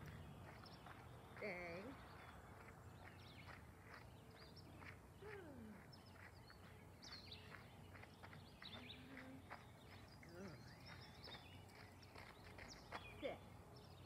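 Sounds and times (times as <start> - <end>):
songbirds chirping and whistling: 0.0 - 14.0.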